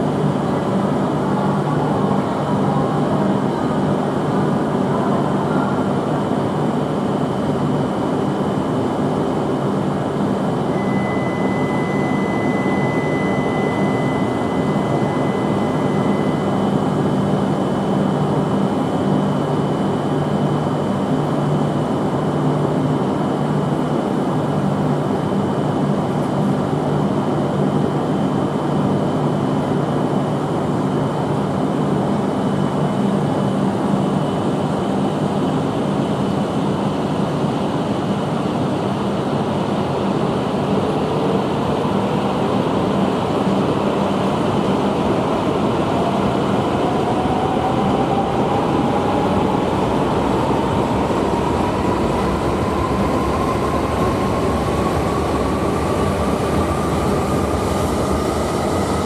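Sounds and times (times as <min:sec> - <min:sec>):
train hum and rumble: 0:00.0 - 0:59.0
thin high tone: 0:10.7 - 0:16.5.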